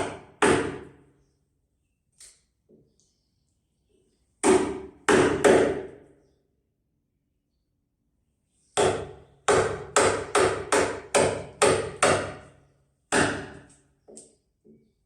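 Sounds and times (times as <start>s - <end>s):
hammer striking wood: 0.0s - 1.0s, 4.4s - 6.0s, 8.8s - 12.5s, 13.1s - 13.7s.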